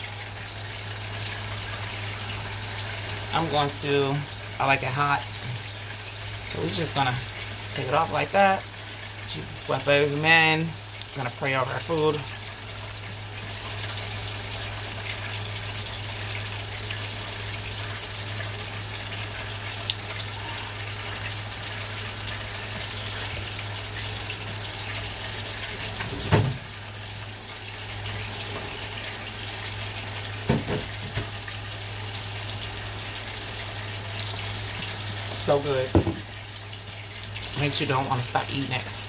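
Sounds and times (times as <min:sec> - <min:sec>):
chicken frying in hot oil: 0:00.0 - 0:39.0.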